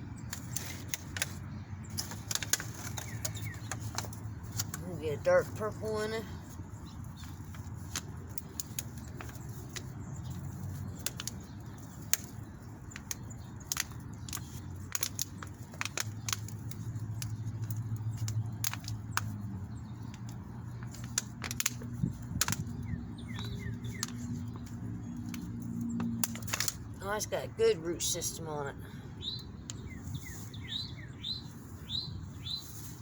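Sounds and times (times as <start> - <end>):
wind rumbling on microphone: 0.0 - 27.0
clicks and crackles handling soil: 0.0 - 33.0.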